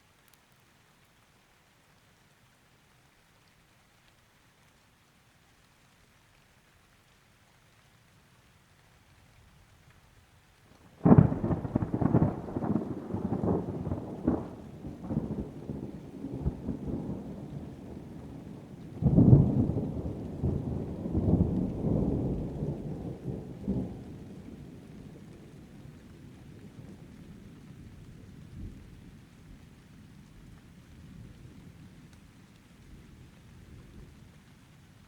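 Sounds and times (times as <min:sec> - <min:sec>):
thunder clap and rumble: 0:11.0 - 0:25.3.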